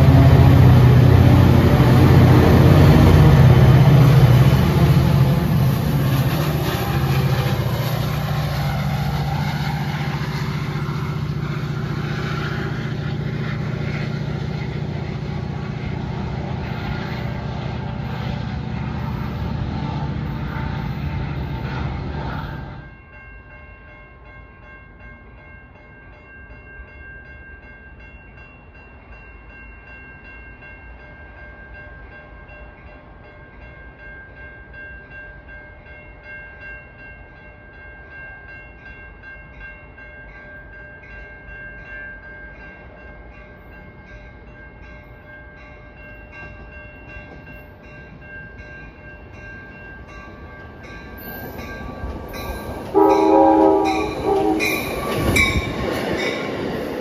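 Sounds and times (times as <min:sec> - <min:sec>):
train rumble: 0:00.0 - 0:23.0, 0:30.6 - 0:57.0
train whine: 0:00.0 - 0:23.1, 0:30.2 - 0:57.0.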